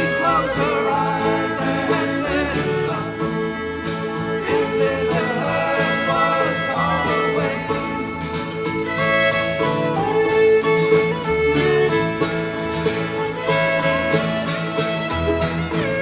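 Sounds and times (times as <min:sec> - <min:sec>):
band playing gospel tune: 0:00.0 - 0:16.0
fiddle: 0:00.0 - 0:16.0
guitar: 0:00.0 - 0:16.0.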